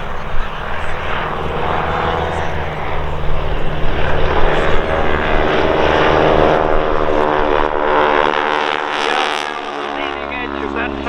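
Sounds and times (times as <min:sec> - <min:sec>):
biplane radial engine flying by: 0:00.0 - 0:11.0.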